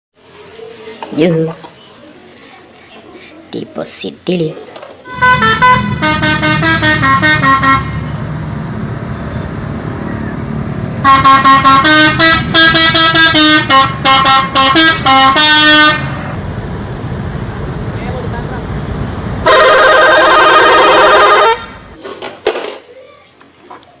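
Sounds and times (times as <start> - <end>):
multi-tone musical bus horn: 5.0 - 8.2, 11.0 - 16.4, 19.4 - 22.0
engine rumble: 5.1 - 22.0.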